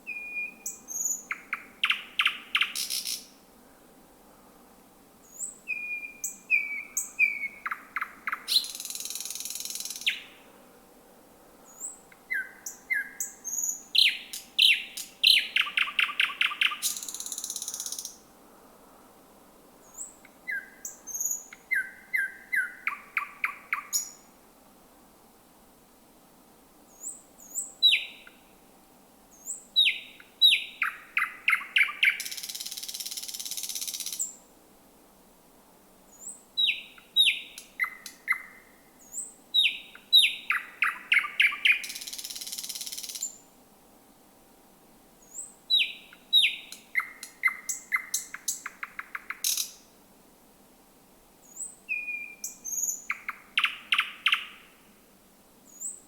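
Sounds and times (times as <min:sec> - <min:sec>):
nightingale singing: 0:00.0 - 0:03.3, 0:05.2 - 0:10.4, 0:11.6 - 0:18.2, 0:19.8 - 0:24.3, 0:26.9 - 0:28.5, 0:29.3 - 0:34.4, 0:36.1 - 0:43.4, 0:45.2 - 0:49.9, 0:51.4 - 0:54.8, 0:55.7 - 0:56.0.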